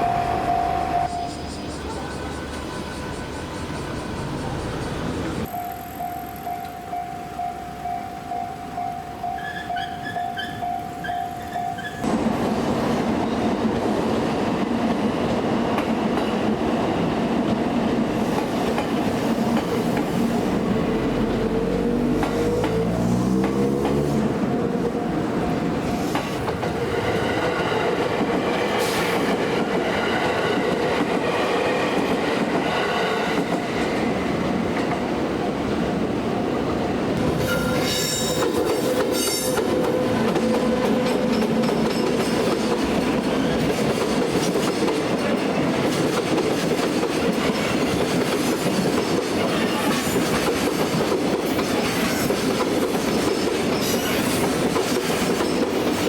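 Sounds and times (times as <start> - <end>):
crossing warning bell ringing: 0.0 - 12.1, 24.8 - 26.7.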